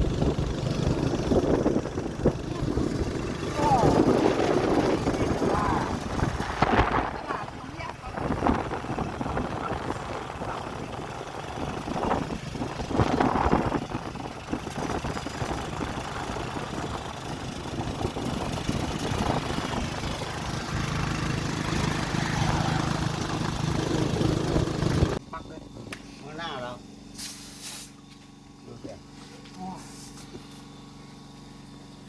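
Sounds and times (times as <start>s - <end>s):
road noise: 0.0s - 25.2s
vehicle engine running: 0.0s - 32.0s.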